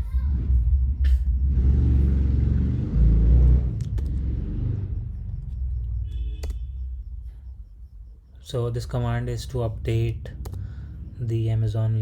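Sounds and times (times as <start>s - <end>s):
loud low rumble with rushing: 0.0s - 6.1s, 9.2s - 12.0s
sharp clicks: 5.2s - 6.7s, 10.3s - 10.7s.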